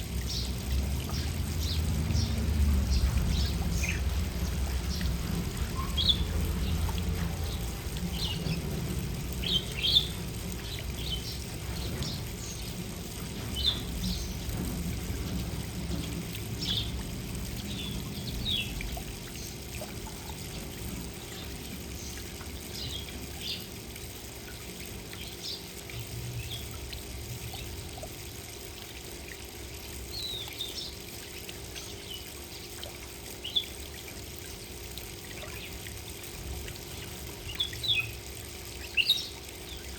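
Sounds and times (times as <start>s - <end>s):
low rumbling background noise: 0.0s - 39.9s
small birds chirping: 0.2s - 14.6s, 36.9s - 39.9s.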